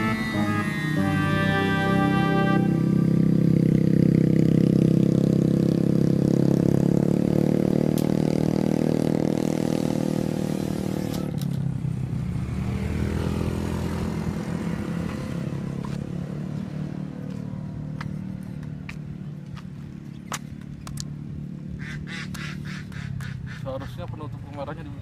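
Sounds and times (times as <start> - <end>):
quadcopter propellers buzzing: 0.0 - 3.8.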